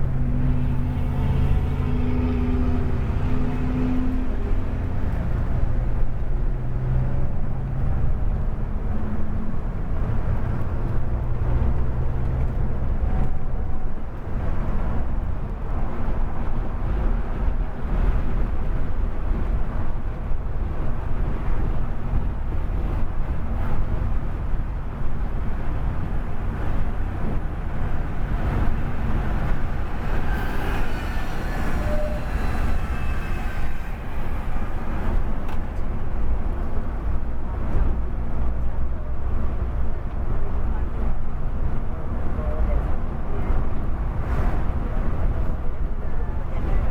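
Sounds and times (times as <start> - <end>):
coach engine drone: 0.0 - 11.3, 22.0 - 46.9
road rumble: 0.0 - 46.9.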